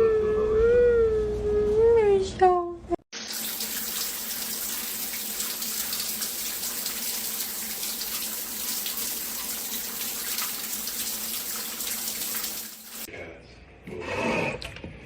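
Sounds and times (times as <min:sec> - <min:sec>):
water running from a tap: 0:03.1 - 0:13.1.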